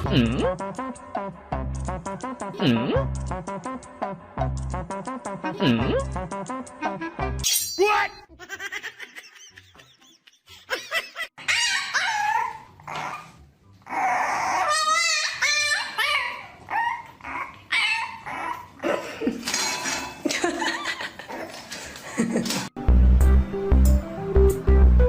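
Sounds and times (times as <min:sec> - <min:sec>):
dog whining and yipping: 0:11.4 - 0:18.8.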